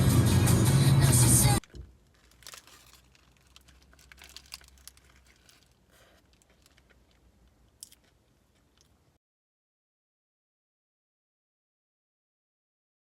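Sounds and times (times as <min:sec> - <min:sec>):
crinkly rustling: 0:01.6 - 0:09.0.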